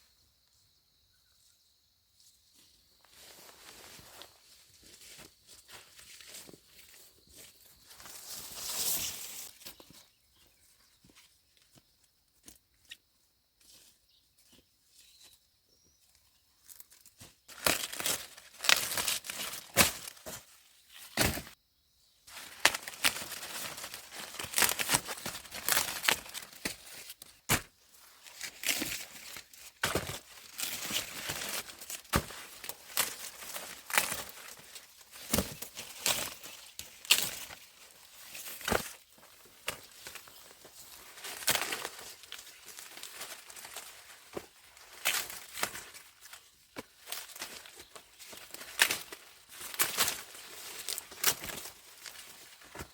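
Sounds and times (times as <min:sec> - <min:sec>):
dry corn leaves rustling: 0:02.2 - 0:11.8, 0:13.6 - 0:21.6, 0:22.3 - 0:52.9
corn snapping: 0:17.5 - 0:20.4, 0:22.3 - 0:27.7, 0:28.4 - 0:37.6, 0:39.6 - 0:46.4, 0:47.0 - 0:52.9.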